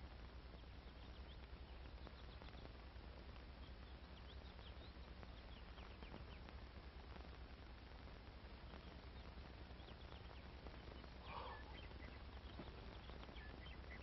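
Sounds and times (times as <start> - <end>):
film soundtrack hiss: 0.0 - 14.0
low mains hum: 0.0 - 14.0
faint high bird chirps: 8.6 - 14.0.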